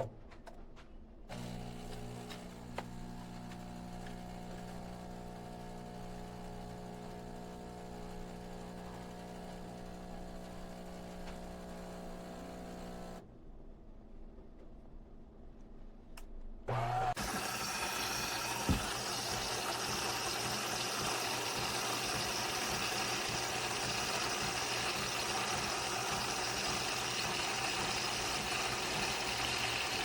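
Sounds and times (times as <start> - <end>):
espresso machine humming: 1.3 - 13.2, 16.7 - 30.0.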